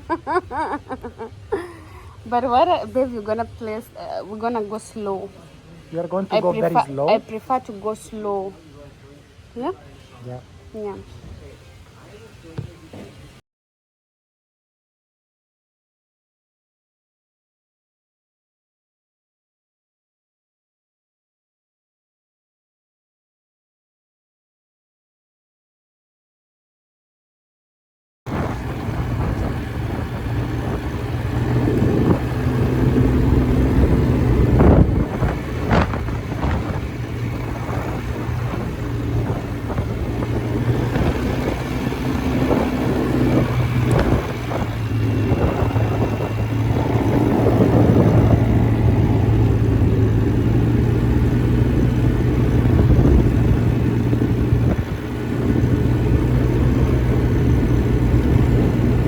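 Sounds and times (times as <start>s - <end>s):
quad bike engine running: 0.0s - 3.9s, 28.3s - 59.0s.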